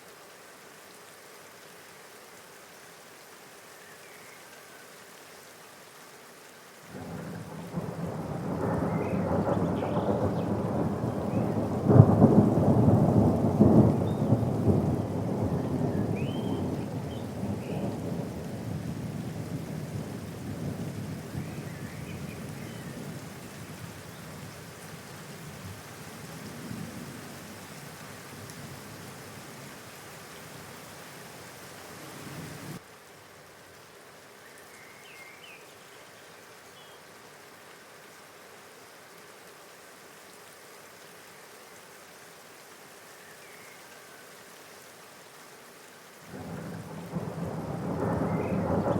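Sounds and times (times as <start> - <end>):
steady rain: 0.0 - 48.9
thunder rumbling: 7.0 - 22.1, 46.3 - 48.9.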